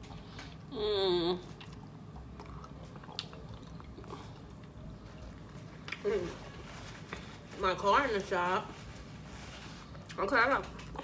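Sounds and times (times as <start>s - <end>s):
person humming: 0.7s - 1.4s
person chewing: 1.4s - 6.0s.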